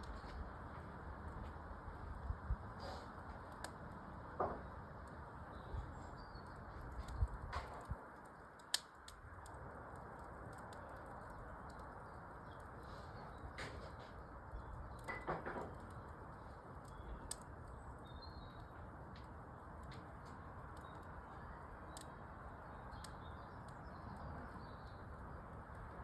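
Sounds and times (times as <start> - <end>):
fire crackling pops: 0.0 - 26.0
fire hissing: 1.8 - 4.6, 5.5 - 17.7.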